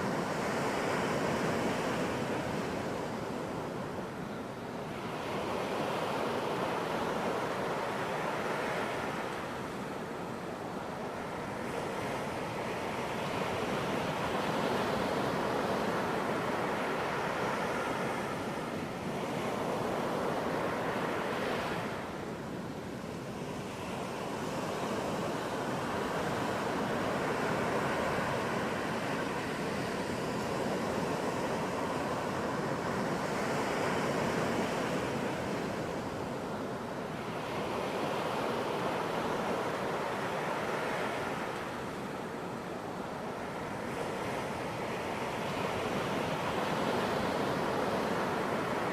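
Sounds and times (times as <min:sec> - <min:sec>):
ocean surf breaking on beach: 0:00.0 - 0:48.9.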